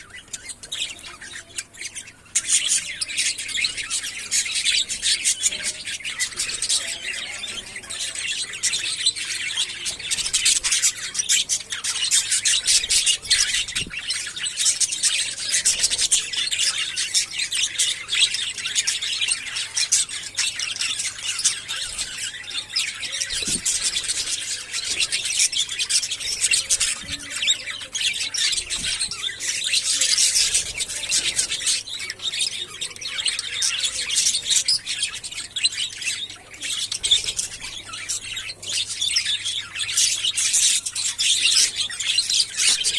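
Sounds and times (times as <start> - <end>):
budgerigars chattering: 0.0 - 42.9.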